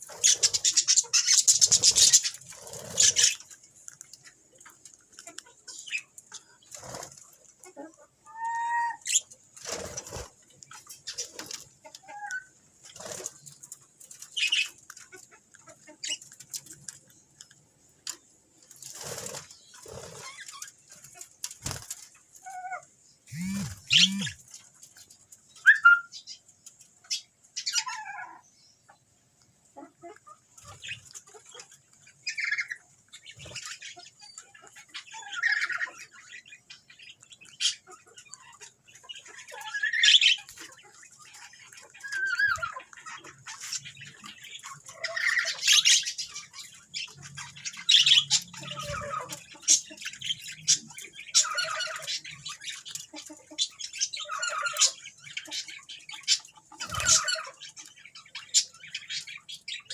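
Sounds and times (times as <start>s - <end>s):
parrots chirping and squawking: 0.0s - 17.3s, 18.1s - 26.4s, 27.0s - 29.0s, 29.8s - 59.9s.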